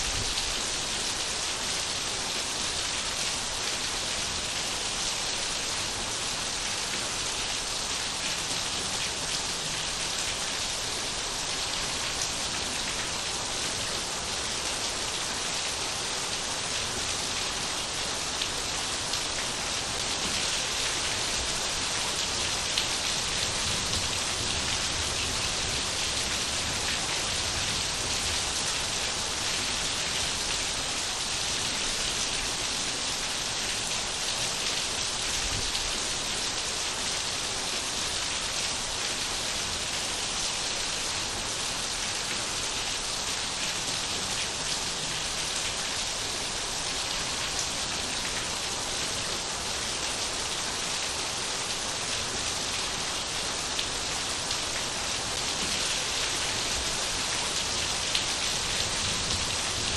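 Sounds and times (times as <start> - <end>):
rain pattering: 41.2 - 59.9.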